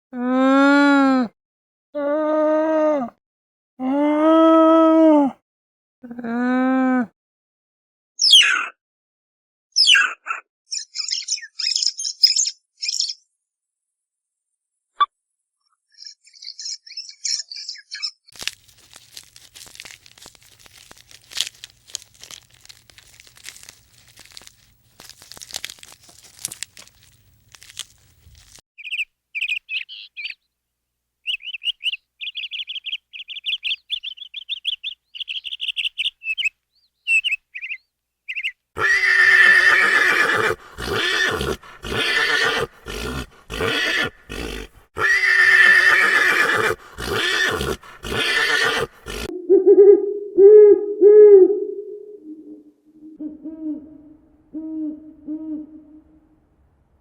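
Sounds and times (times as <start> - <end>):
loud animal calls: 38.8 - 49.3.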